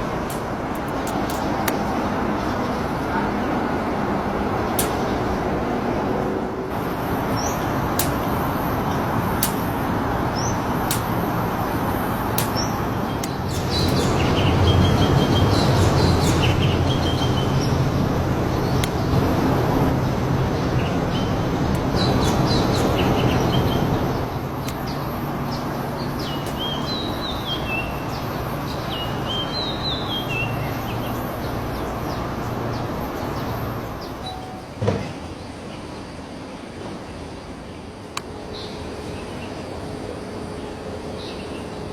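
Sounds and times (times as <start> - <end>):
birds chirping: 0.0 - 3.8, 6.7 - 35.9
traffic rumble: 0.0 - 41.9.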